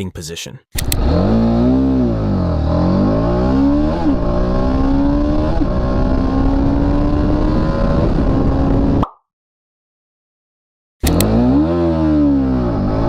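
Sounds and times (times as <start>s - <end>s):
motorcycle engine accelerating: 0.8s - 9.0s, 11.0s - 13.0s.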